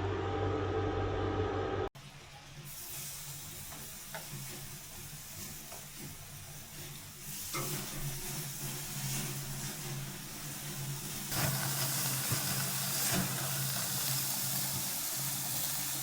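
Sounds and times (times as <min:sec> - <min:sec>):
low hum: 0:00.0 - 0:01.9
food sizzling in a frying pan: 0:02.5 - 0:16.0.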